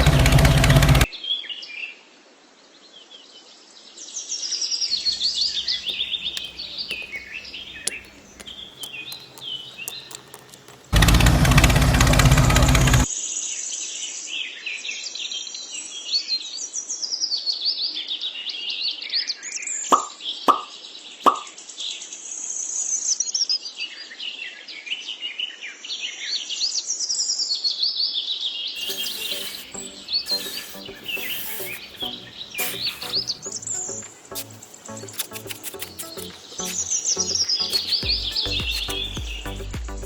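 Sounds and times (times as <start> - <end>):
small birds chirping and singing: 4.9 - 11.7, 28.8 - 40.0.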